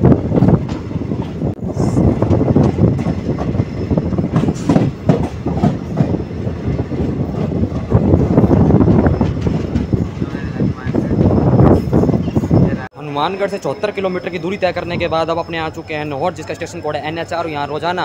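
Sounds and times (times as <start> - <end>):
train wheels clattering on rails: 0.0 - 12.8
carriages rumbling: 0.0 - 18.0.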